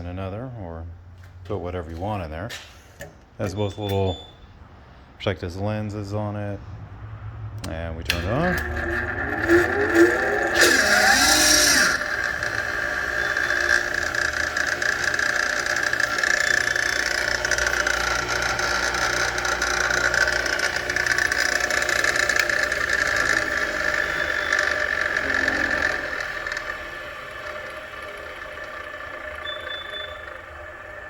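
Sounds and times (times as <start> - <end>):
low motor hum: 0.0 - 31.0
bench grinder whining: 7.6 - 31.0.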